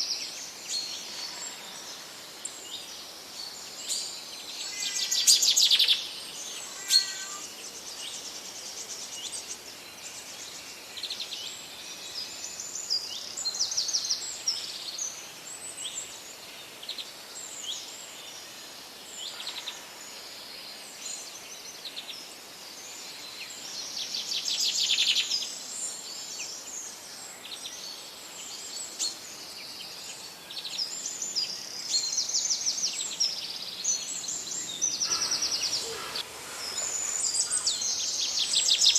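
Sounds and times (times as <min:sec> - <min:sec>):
birds chirping and trilling: 0:00.0 - 0:15.2, 0:27.5 - 0:38.9
steady background hiss: 0:00.0 - 0:38.9.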